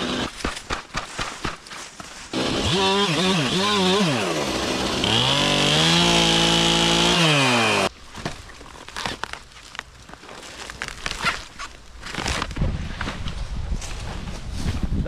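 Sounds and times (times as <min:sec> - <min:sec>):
chainsaw revving: 0:00.0 - 0:00.3, 0:02.3 - 0:07.9.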